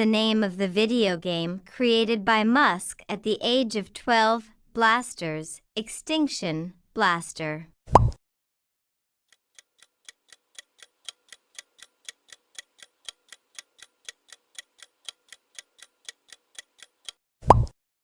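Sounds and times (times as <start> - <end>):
clock ticking: 9.3 - 17.2.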